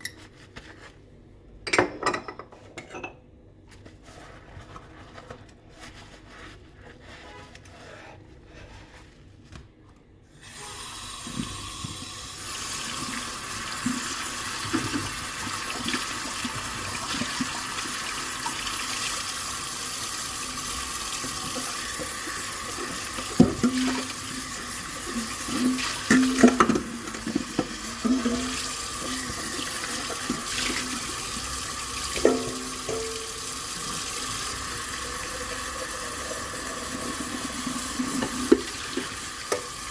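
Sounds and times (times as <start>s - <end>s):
dishes clinking: 1.6s - 3.3s, 32.2s - 33.5s
tap water running into sink: 10.8s - 39.9s.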